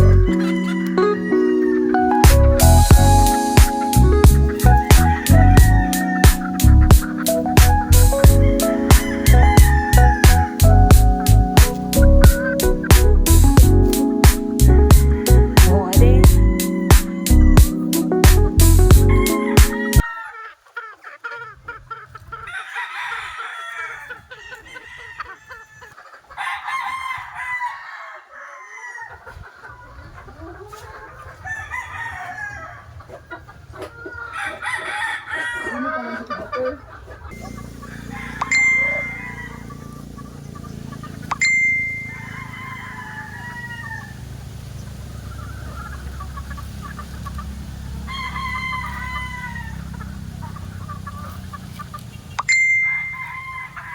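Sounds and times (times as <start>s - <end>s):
roosters crowing: 0.0s - 53.9s
steady low rumble: 2.3s - 3.4s, 4.0s - 13.9s, 14.7s - 16.6s.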